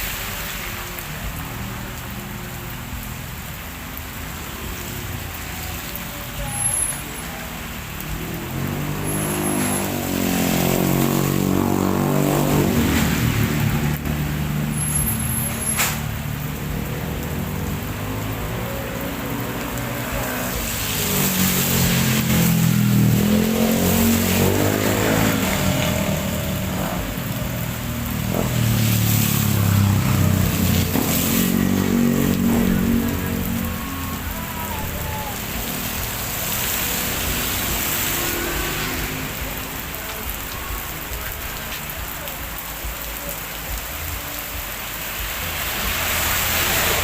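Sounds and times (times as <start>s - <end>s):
heavy rain falling: 0.0s - 47.0s
vehicle engine passing by: 8.0s - 40.9s.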